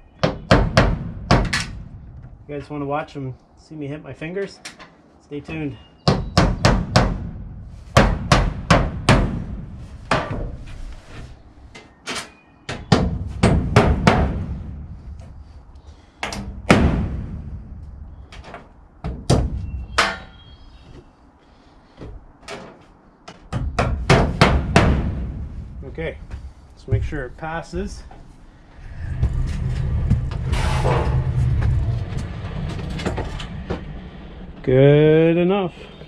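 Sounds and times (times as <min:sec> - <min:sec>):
hammer striking metal roofing: 0:00.2 - 0:02.0, 0:06.0 - 0:10.6, 0:12.7 - 0:14.8, 0:16.2 - 0:17.4, 0:18.4 - 0:20.4, 0:23.4 - 0:25.5.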